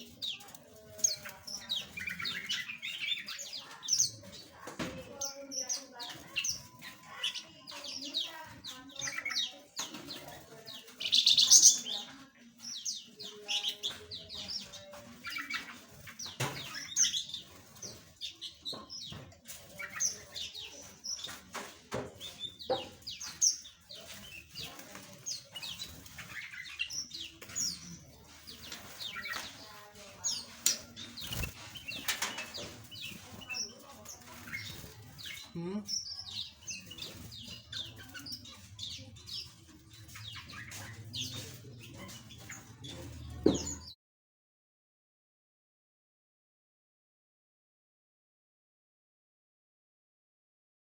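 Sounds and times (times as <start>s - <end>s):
small birds chirping: 0.0s - 44.0s
wings fluttering: 28.4s - 35.4s.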